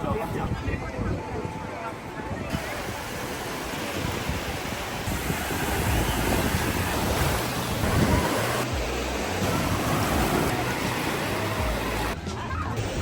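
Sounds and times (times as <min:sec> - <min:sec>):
wind buffeting microphone: 0:00.0 - 0:08.7
ocean surf washing onto beach: 0:02.5 - 0:12.2.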